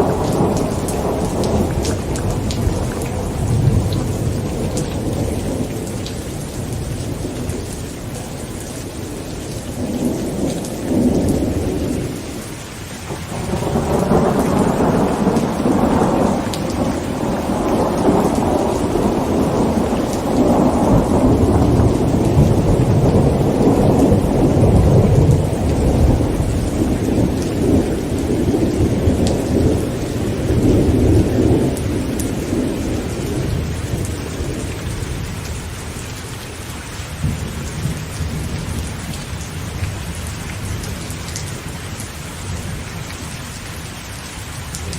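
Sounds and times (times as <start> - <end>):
rolling thunder: 0.0 - 12.5, 13.1 - 36.0
heavy rain on a tent: 0.0 - 44.9.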